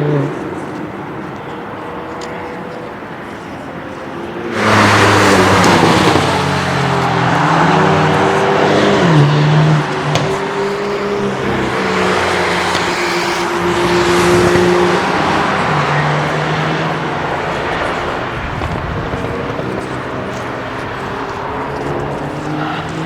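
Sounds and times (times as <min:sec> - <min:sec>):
racing car engines: 0:00.0 - 0:23.0
sharp exhaust pops: 0:09.8 - 0:15.2.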